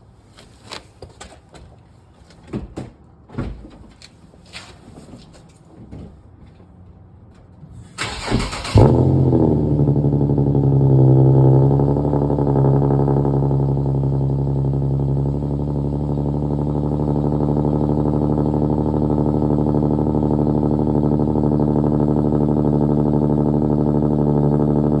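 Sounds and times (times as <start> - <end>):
car engine starting and idling: 7.7 - 25.0.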